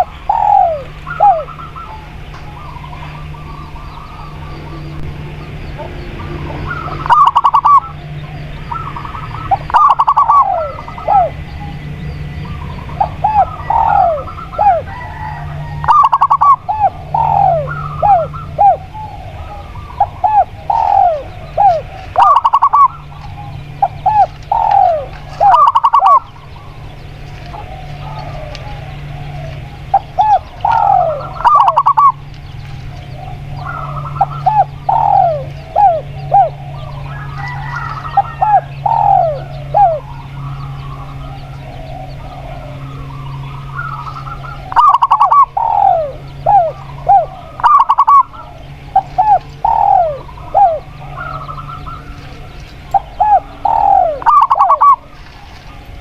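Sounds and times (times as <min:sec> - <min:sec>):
doves cooing: 0:00.0 - 0:56.0
steady low hum: 0:00.0 - 0:56.0.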